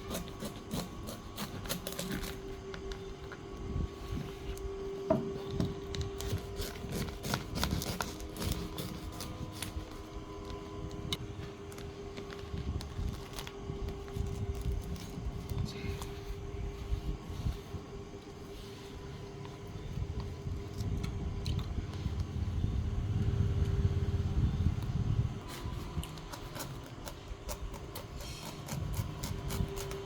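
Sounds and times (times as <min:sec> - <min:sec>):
knife cutting spiky husk: 0:00.0 - 0:03.0, 0:05.8 - 0:10.6, 0:25.4 - 0:30.0
steady hum: 0:00.0 - 0:30.0.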